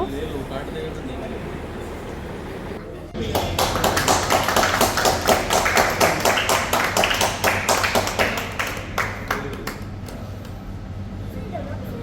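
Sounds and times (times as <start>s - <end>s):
group clapping hands: 3.2s - 10.6s.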